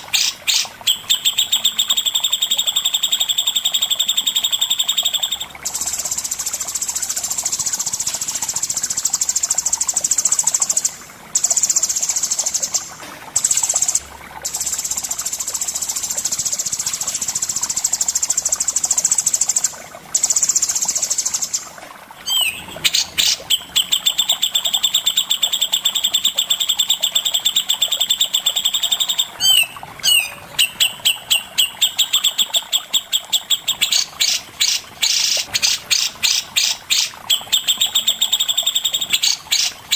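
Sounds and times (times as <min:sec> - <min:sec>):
songbird trilling: 0:22.2 - 0:26.7, 0:27.4 - 0:39.7.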